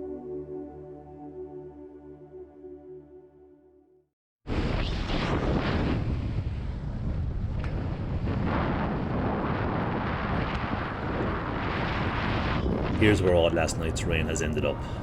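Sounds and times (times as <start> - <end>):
wind buffeting microphone: 5.3 - 15.0.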